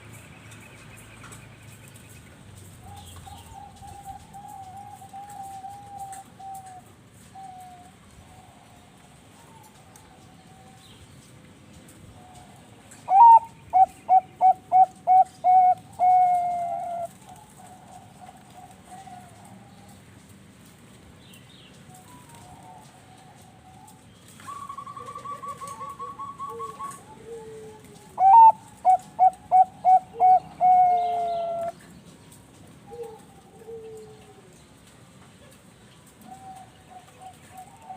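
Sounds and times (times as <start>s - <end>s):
zebra dove cooing song: 2.8s - 10.9s, 12.2s - 20.0s, 21.9s - 31.8s, 32.8s - 34.6s, 36.2s - 37.9s
faint cooing: 25.0s - 31.7s.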